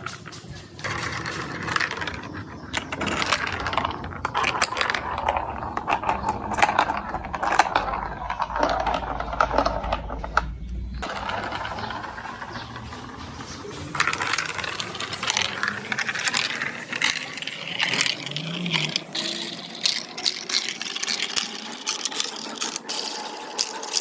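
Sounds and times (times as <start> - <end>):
low hum: 0.0 - 19.2
marbles clattering through a run: 0.0 - 24.0.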